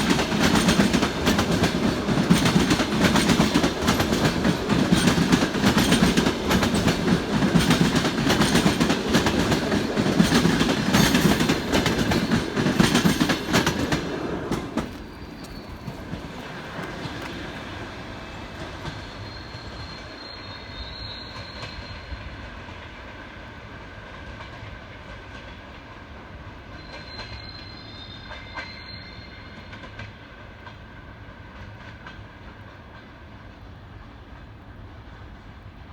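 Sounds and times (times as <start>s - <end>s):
train wheels clattering: 0.0s - 20.1s
high wheel squeals: 14.9s - 16.9s, 19.0s - 22.2s, 26.8s - 29.7s.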